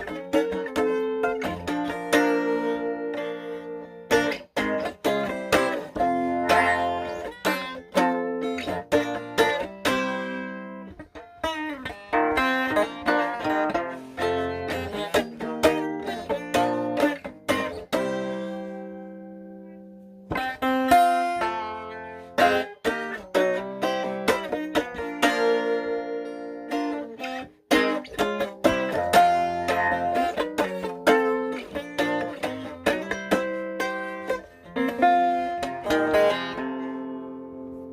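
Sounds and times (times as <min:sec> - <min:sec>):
slow blues guitar: 0:00.0 - 0:37.9.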